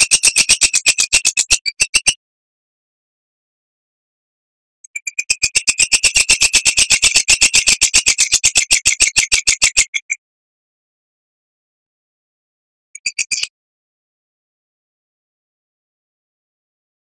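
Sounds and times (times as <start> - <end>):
bird singing sharp repeated notes: 0.0 - 2.2, 4.8 - 10.2, 13.0 - 13.5.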